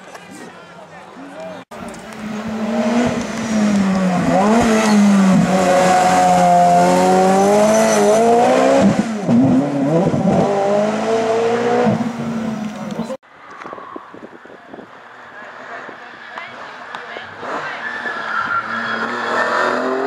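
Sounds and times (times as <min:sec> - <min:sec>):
race car engine revving: 0:01.8 - 0:13.2, 0:16.5 - 0:20.0.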